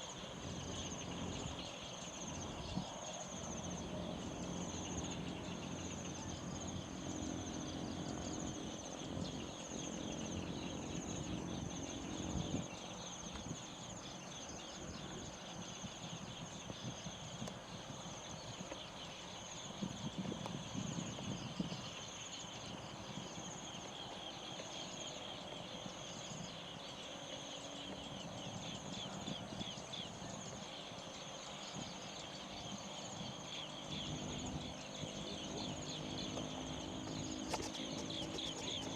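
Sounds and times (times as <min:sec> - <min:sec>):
crickets chirping: 0:00.0 - 0:38.9
insects trilling: 0:00.0 - 0:38.9.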